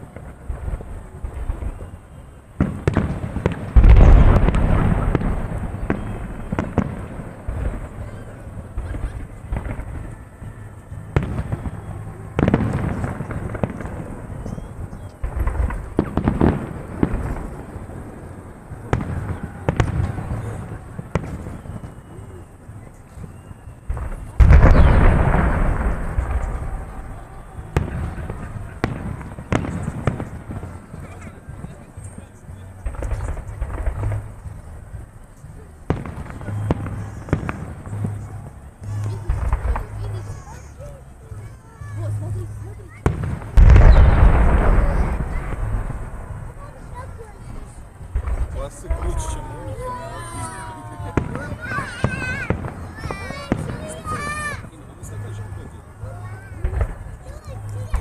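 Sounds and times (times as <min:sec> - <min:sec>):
firework cracks: 0:00.0 - 0:42.1, 0:42.9 - 0:55.2, 0:56.3 - 0:58.0
heavy firework boom: 0:02.6 - 0:22.0, 0:23.8 - 0:31.7, 0:43.0 - 0:50.5.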